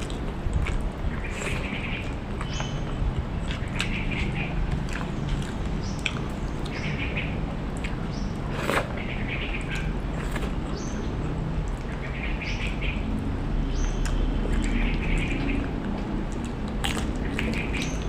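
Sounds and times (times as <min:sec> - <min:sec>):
bird chirping: 0:01.0 - 0:15.8, 0:17.2 - 0:18.0.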